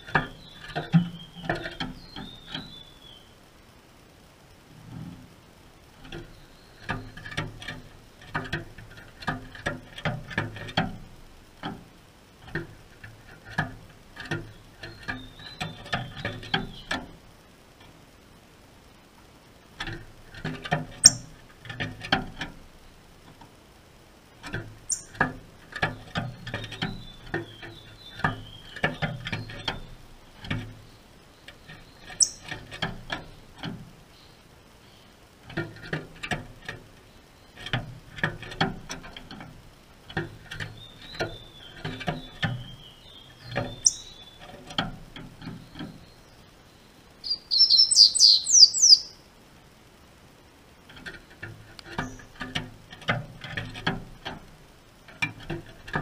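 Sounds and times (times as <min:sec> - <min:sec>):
bird hopping in wire cage: 0:19.8 - 0:22.7, 0:24.4 - 0:30.9, 0:31.5 - 0:34.0, 0:37.6 - 0:46.1.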